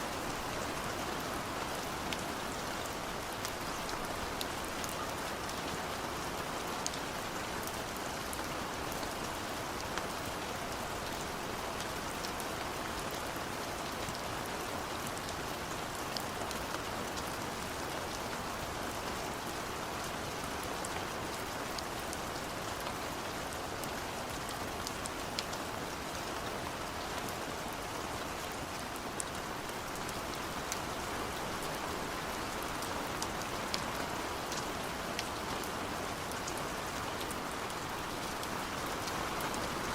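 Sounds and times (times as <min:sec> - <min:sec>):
steady rain hissing: 0:00.0 - 0:39.9.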